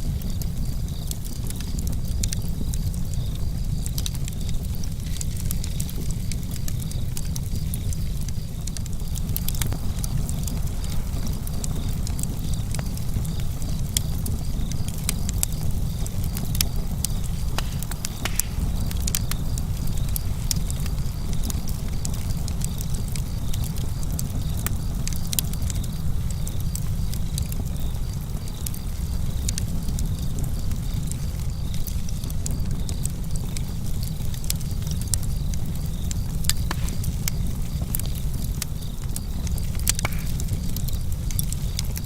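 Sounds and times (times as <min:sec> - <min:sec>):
fire low rumble: 0:00.0 - 0:42.0
wood snapping and popping: 0:03.8 - 0:25.9, 0:31.5 - 0:42.0.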